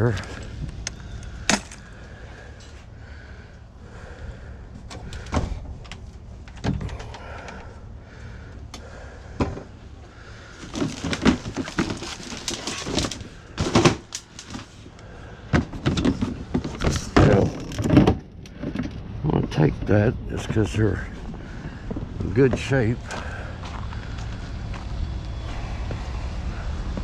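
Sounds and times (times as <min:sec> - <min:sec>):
low steady rumble: 0:00.0 - 0:27.0
items knocking and clattering: 0:10.6 - 0:14.7, 0:15.5 - 0:19.0.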